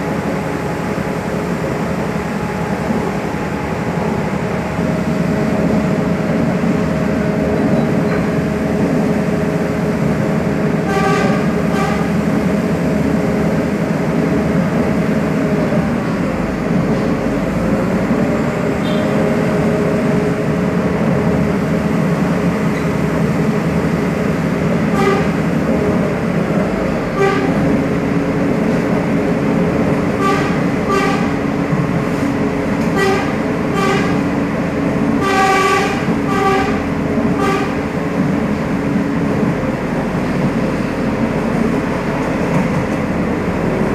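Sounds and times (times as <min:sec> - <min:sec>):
train rumbling: 0:00.0 - 0:43.9
train horn toots: 0:10.8 - 0:12.2, 0:18.8 - 0:19.2, 0:24.9 - 0:25.5, 0:27.1 - 0:27.7, 0:30.1 - 0:31.4, 0:32.8 - 0:34.3, 0:35.2 - 0:37.8.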